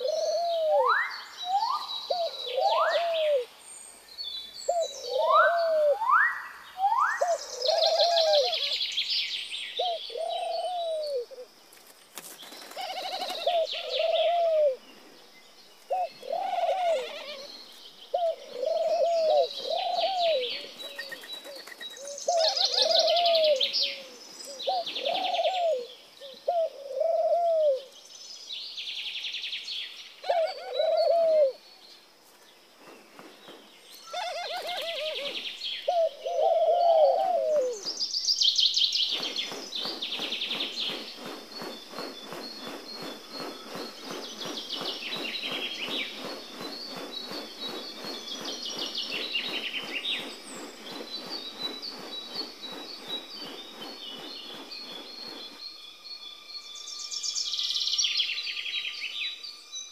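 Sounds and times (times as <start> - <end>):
bird chirps and buzzy trills: 0.0 - 59.9.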